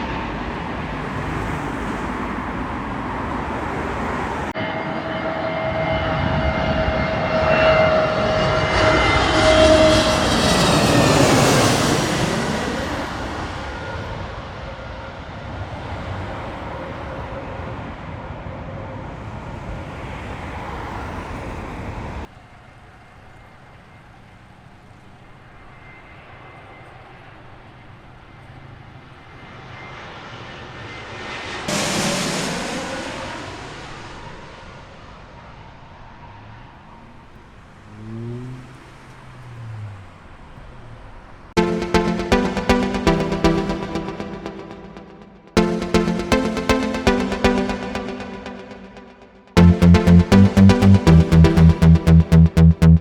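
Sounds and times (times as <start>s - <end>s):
jet airliner passing overhead: 0.0s - 16.6s.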